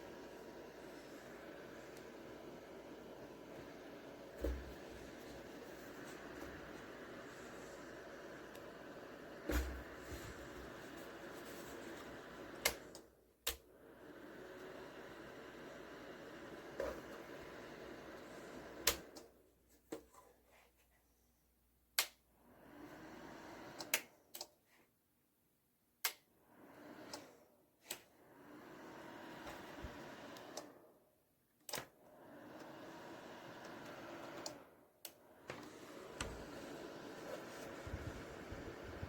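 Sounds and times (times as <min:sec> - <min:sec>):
heater fan whooshing: 0:00.0 - 0:19.2, 0:28.2 - 0:30.8, 0:32.1 - 0:39.0
heater control clicks: 0:12.4 - 0:13.6, 0:18.8 - 0:19.3, 0:22.0 - 0:22.2.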